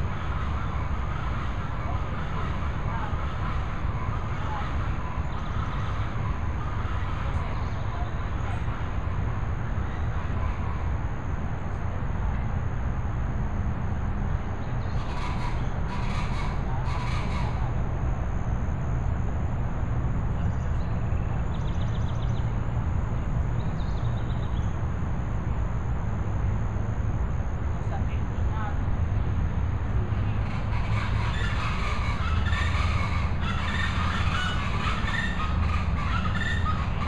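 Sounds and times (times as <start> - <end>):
bird harsh calls: 14.8 - 17.7, 30.2 - 37.0.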